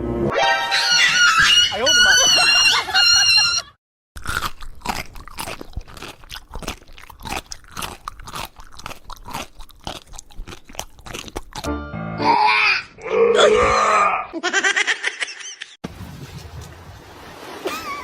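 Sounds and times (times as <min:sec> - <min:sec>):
crunchy food being chewed: 0:04.2 - 0:11.7.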